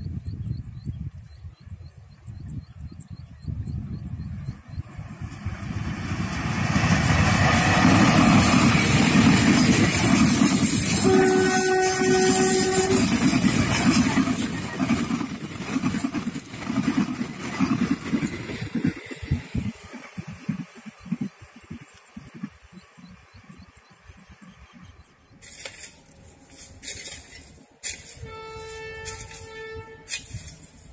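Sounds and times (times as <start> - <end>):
train passing at speed: 3.4 - 30.9
locomotive horn: 10.9 - 14.0, 27.8 - 30.7.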